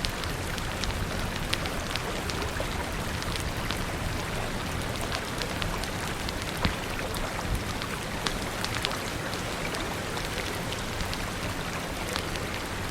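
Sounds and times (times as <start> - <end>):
sharp ticks and pops: 0.0 - 12.7
rain falling: 0.0 - 12.9.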